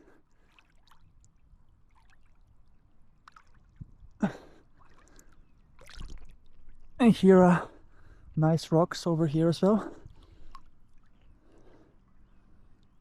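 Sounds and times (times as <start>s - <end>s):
lake water lapping: 0.0s - 8.3s, 9.3s - 13.0s
swimming stroke splashes: 0.4s - 6.9s
swimmer breath: 9.8s - 12.3s.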